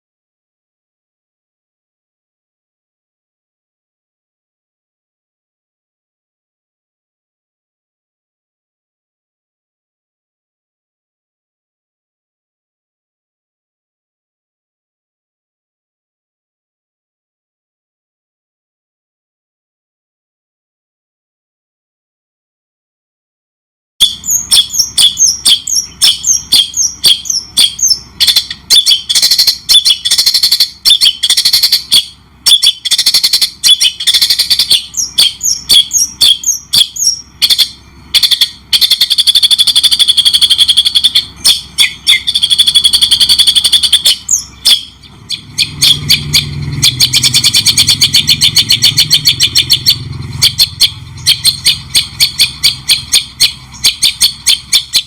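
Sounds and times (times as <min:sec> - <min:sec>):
songbird chirps and trills: 0:24.0 - 0:55.0.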